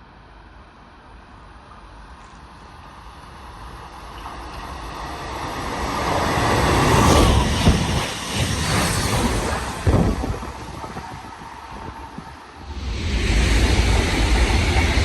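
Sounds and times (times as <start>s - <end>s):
train rushing past: 3.0s - 15.0s.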